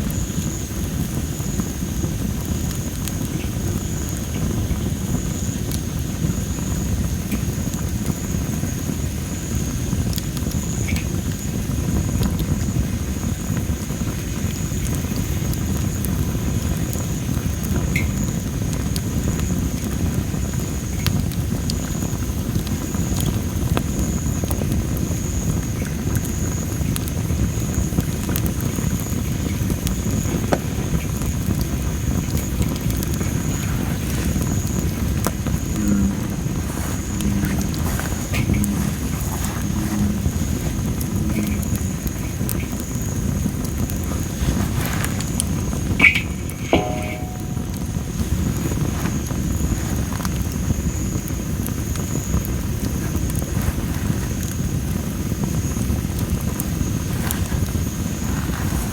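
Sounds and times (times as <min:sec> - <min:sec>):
firewood crackling and popping: 0:00.0 - 0:58.9
low rumble of fire: 0:00.0 - 0:58.9
steady high-pitched tone: 0:37.1 - 0:42.0, 0:46.0 - 0:48.4.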